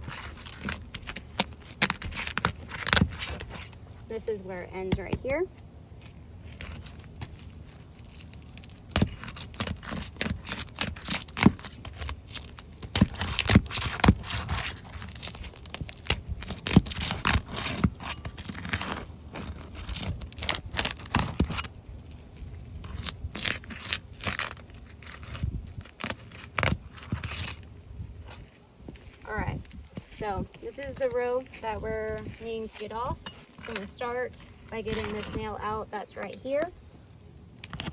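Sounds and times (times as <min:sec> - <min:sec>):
sharp cracks and tearing: 0:00.0 - 0:03.8, 0:06.0 - 0:30.2, 0:37.5 - 0:37.9
tool scraping and prying shingles: 0:00.0 - 0:03.8, 0:06.0 - 0:27.7, 0:29.8 - 0:36.4.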